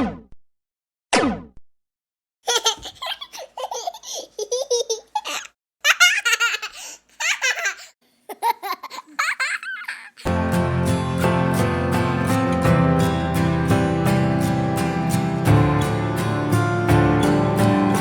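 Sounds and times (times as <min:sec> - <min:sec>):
baby laughing and giggling: 0:02.5 - 0:10.3
acoustic guitar music: 0:10.3 - 0:18.0.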